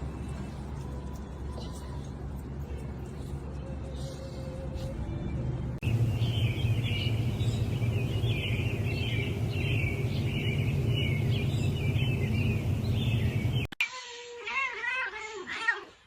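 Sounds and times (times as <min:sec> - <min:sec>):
steady low rumble: 0:05.5 - 0:13.7
birds chirping: 0:05.8 - 0:13.7.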